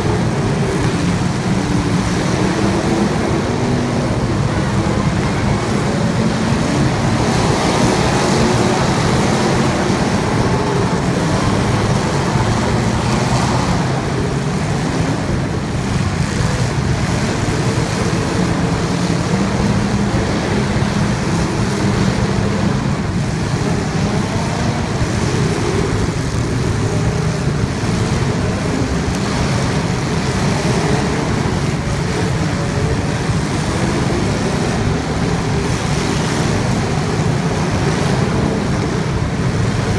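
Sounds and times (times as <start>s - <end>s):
racing engines revving: 0.0s - 39.9s.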